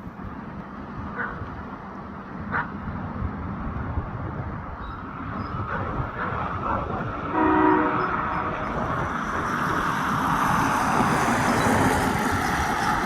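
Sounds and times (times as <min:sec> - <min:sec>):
diesel locomotive horn blast: 0:07.2 - 0:08.8.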